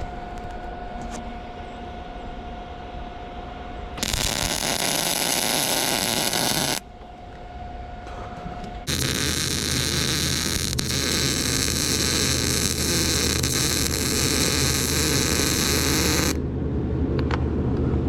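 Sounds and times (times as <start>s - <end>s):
welding arc crackling and hissing: 4.0s - 6.8s, 8.9s - 16.4s.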